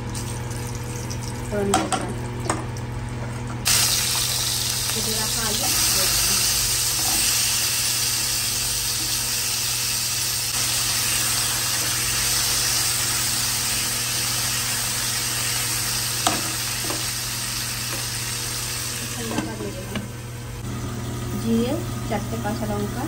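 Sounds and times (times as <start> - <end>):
potatoes sizzling in oil: 3.7 - 19.9.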